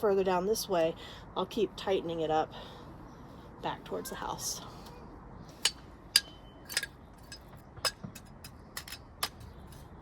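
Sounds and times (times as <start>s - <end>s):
pavers clinking together: 5.6s - 9.8s.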